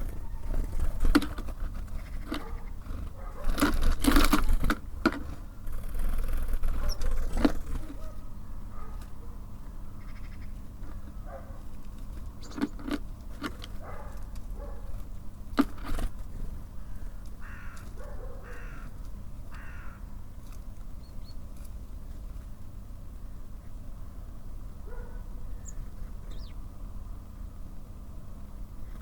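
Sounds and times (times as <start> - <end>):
magpie harsh rasping calls: 16.8 - 18.9, 19.5 - 20.1.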